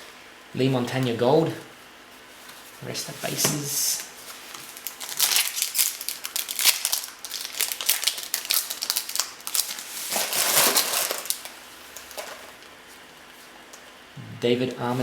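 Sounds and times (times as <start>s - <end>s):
card pack wrapper crinkling: 4.0s - 12.7s.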